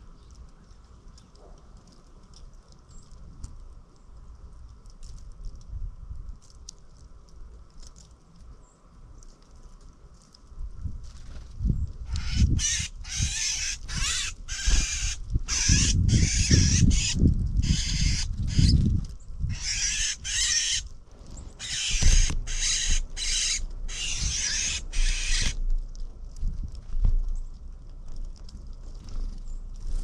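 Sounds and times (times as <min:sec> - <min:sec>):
birds calling: 0:12.1 - 0:25.6.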